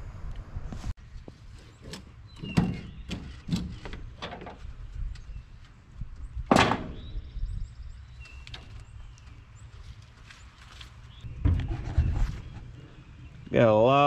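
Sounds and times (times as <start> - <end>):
knocks and thuds: 6.5 - 7.0, 11.3 - 12.6.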